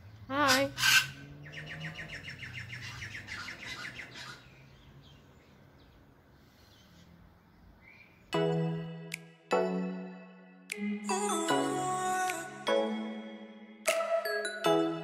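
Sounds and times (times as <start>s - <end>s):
bird chirping rapidly: 0.3s - 6.0s.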